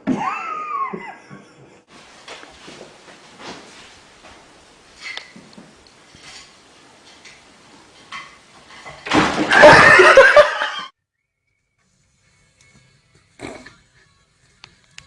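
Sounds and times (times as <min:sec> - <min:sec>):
person laughing or yelling: 0:00.0 - 0:01.5, 0:09.5 - 0:10.9.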